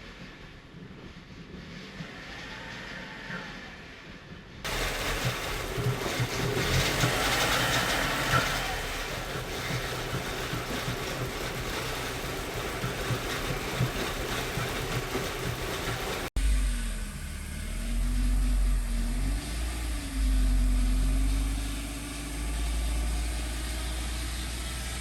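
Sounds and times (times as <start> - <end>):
car engine fast idle: 4.7 - 25.0.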